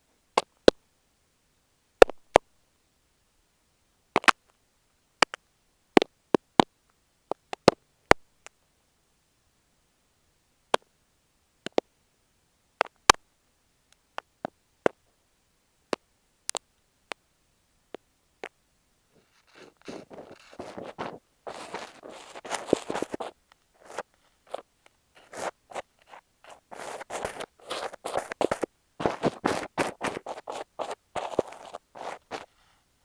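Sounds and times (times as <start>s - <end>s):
sand crunching against microphone: 19.2s - 24.6s, 25.2s - 32.6s
clicks and taps on microphone: 19.2s - 32.5s.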